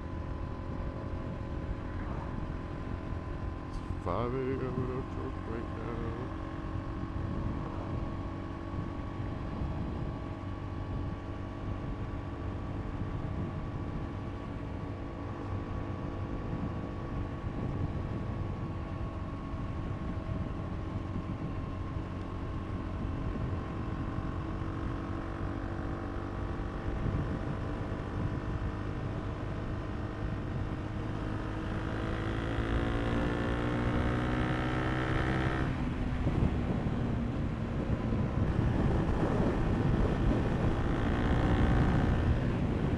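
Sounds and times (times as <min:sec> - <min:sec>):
motorcycle engine accelerating: 0:00.0 - 0:42.9
wind noise on microphone: 0:07.0 - 0:14.6, 0:15.9 - 0:21.6, 0:22.9 - 0:24.3, 0:26.6 - 0:30.8, 0:35.3 - 0:42.9.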